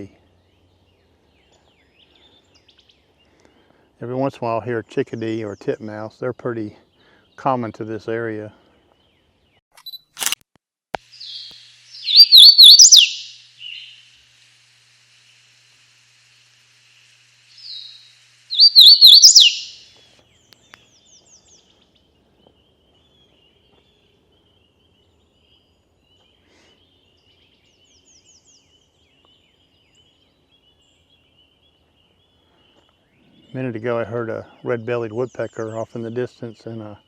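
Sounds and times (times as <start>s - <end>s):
bird song: 0.0s - 9.6s, 11.0s - 14.1s, 17.5s - 37.0s
high down-slurred bird notes: 11.1s - 14.0s, 17.6s - 19.9s.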